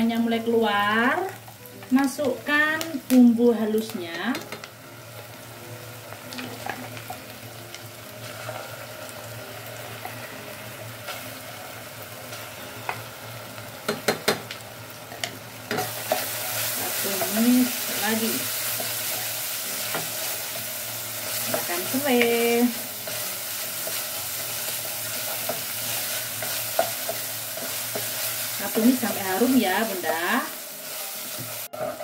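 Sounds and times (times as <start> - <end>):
onions sizzling in a pot: 0.0 - 32.0.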